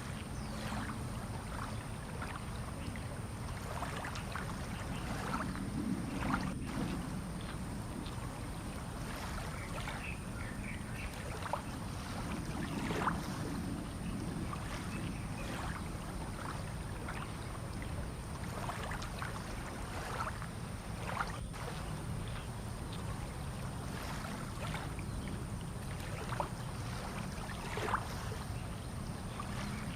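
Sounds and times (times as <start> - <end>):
steady low rumble: 4.5 - 9.0.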